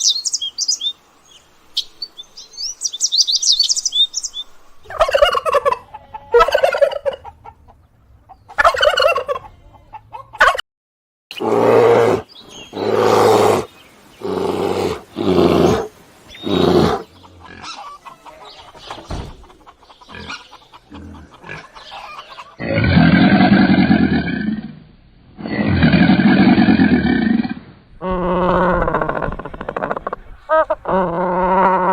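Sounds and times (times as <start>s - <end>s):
animal calls: 11.3s - 24.6s, 25.4s - 31.9s.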